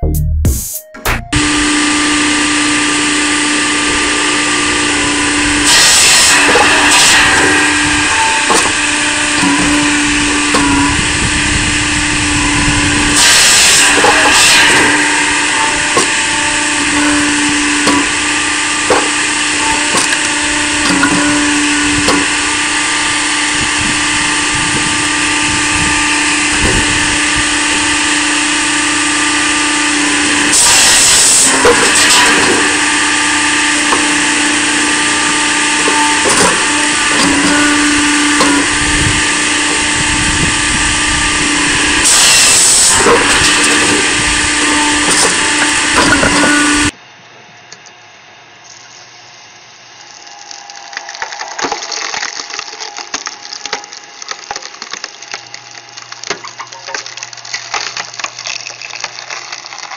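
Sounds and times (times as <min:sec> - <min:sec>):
wood knocking on machine: 0:01.3 - 0:46.9
firewood processor humming: 0:01.3 - 0:59.9
saw cutting through log: 0:01.4 - 0:47.0.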